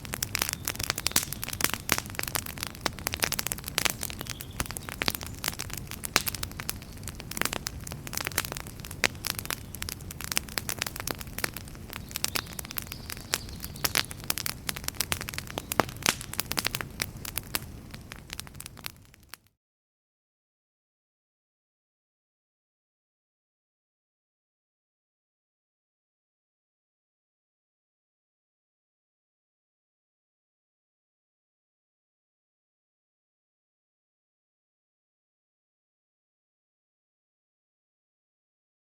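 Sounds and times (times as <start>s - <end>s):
campfire crackling and popping: 0.0s - 19.5s.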